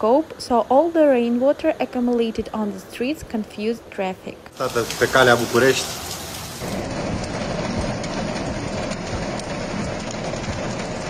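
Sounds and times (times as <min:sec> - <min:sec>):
torrential rain pouring: 0:04.6 - 0:11.0.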